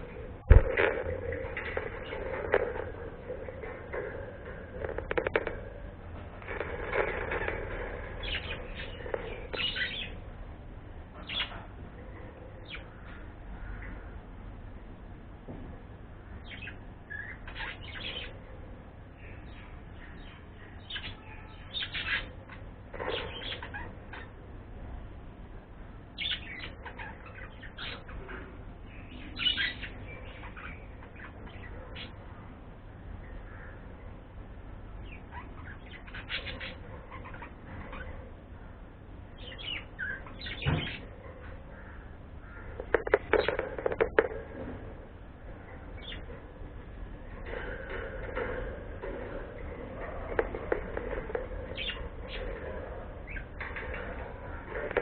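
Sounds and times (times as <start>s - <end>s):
faint low hum: 0.0s - 55.0s
bird chirping: 6.4s - 10.3s, 11.1s - 14.1s, 16.4s - 18.4s, 19.2s - 24.4s, 26.1s - 32.2s, 34.9s - 38.3s, 39.3s - 44.7s, 47.2s - 55.0s.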